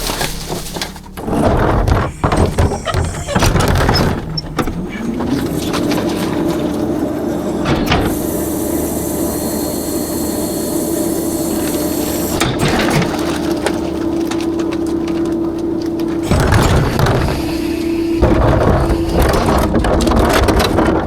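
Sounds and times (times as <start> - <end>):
hydraulic system whine: 0.0 - 21.0
hiss: 8.1 - 12.4.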